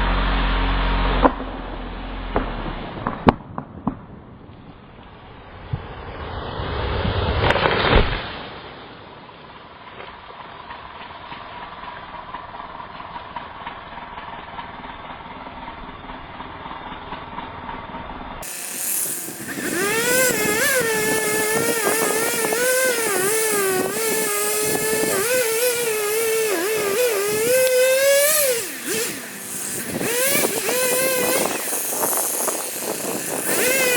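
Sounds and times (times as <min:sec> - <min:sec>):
chainsaw cutting wood: 0:18.4 - 0:33.9.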